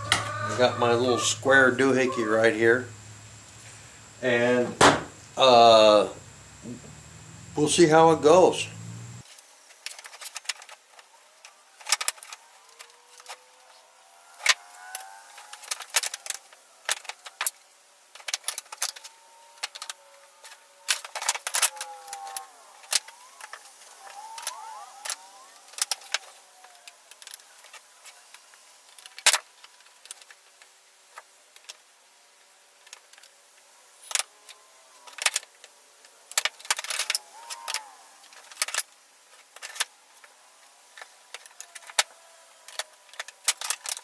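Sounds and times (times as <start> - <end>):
sharp bang: 4.7 - 5.2
wooden pieces clicking and knocking: 9.7 - 31.8, 34.0 - 44.0
thin squeaky whines: 18.2 - 26.7.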